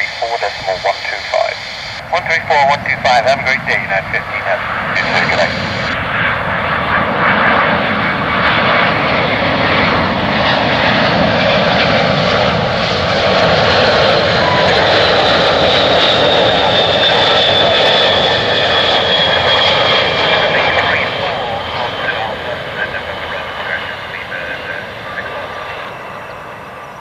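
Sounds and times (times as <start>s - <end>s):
high whine dropping in pitch: 0.0s - 2.1s, 4.9s - 6.0s
jet engines running: 0.0s - 27.0s.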